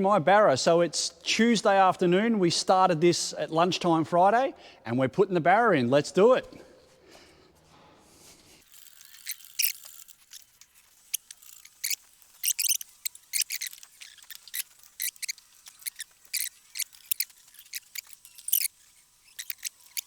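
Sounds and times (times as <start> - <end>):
engine crane squeaking: 9.0 - 20.0.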